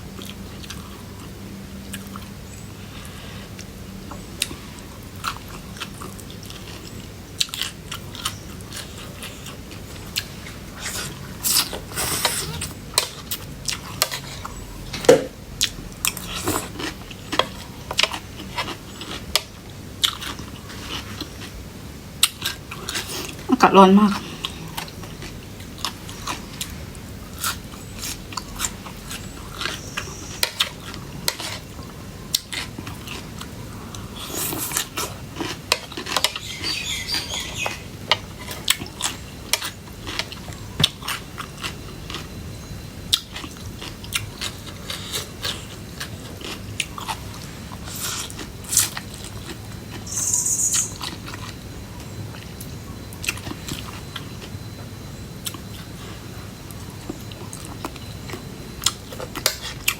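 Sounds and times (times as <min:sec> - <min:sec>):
wet mouth clicks chewing: 0:56.7 - 0:59.9.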